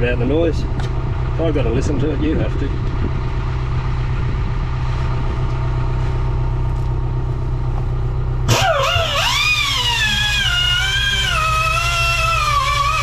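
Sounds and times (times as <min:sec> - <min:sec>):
air-driven tyre buffer droning: 0:00.0 - 0:13.0.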